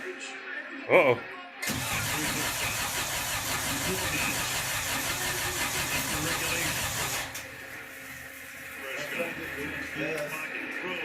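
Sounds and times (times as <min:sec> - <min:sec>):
car engine cranking on starter: 0:01.6 - 0:07.4.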